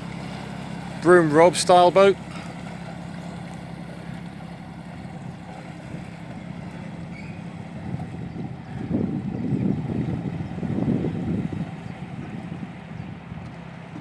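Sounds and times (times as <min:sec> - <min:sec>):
boat engine humming: 0:00.0 - 0:14.0
wind buffeting microphone: 0:03.9 - 0:14.0.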